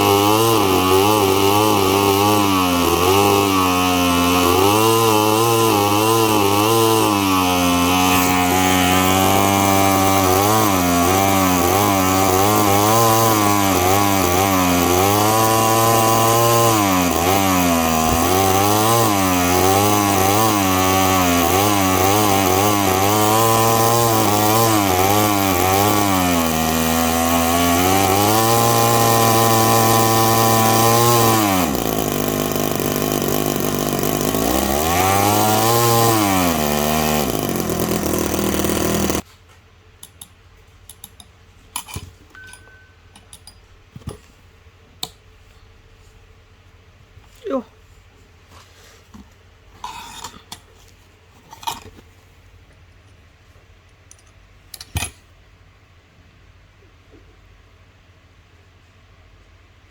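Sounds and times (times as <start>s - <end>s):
model engine revving: 0.0s - 39.2s.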